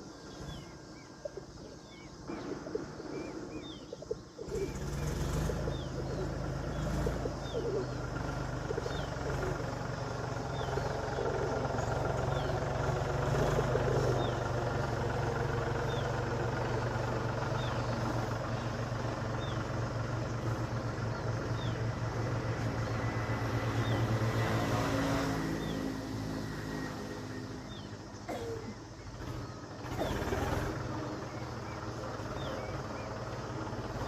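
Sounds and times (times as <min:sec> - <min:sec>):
low engine hum: 0:00.0 - 0:34.0.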